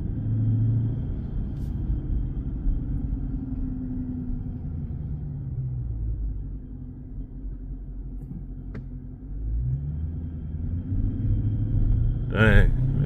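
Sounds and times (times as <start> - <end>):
car engine cruising: 0.0 - 13.0.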